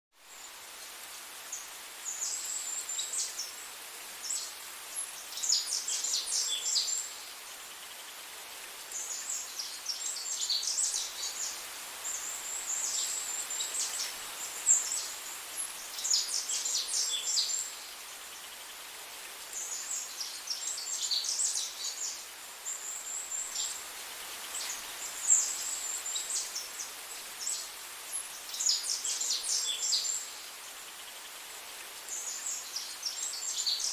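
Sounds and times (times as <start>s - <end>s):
background hiss: 0.2s - 33.9s
songbird singing: 19.5s - 23.8s, 24.6s - 31.2s, 32.1s - 33.9s.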